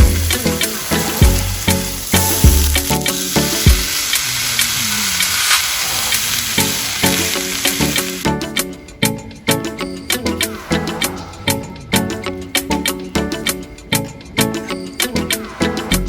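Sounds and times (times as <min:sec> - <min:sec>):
background music: 0:00.0 - 0:04.4, 0:06.3 - 0:16.0
meat sizzling in a pan: 0:00.0 - 0:08.2.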